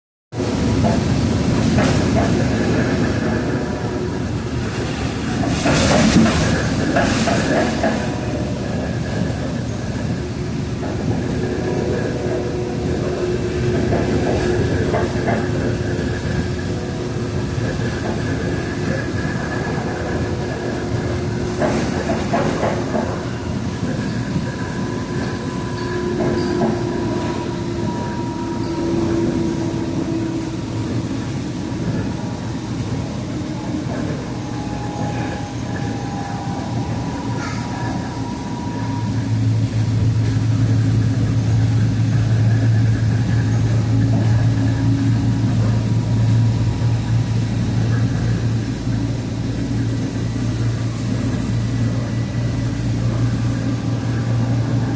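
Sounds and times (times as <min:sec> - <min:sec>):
train rumbling on rails: 0:00.3 - 0:54.9.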